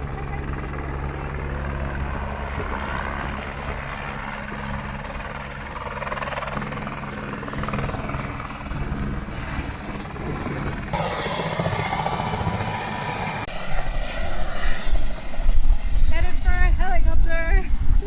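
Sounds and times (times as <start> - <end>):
helicopter engine and rotor hum: 0.0 - 14.4.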